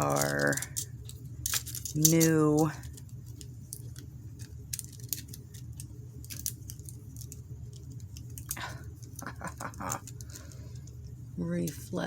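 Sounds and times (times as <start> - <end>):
clicks and taps of small items: 0.0 - 4.0
low steady hum: 0.0 - 12.0.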